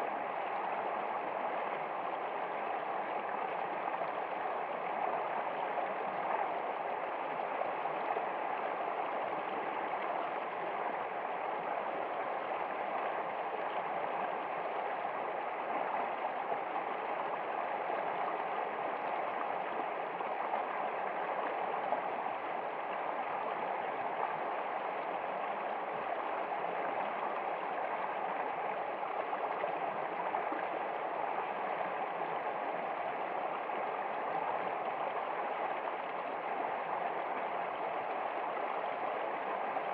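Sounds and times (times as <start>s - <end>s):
stream water gurgling: 0.0s - 39.9s.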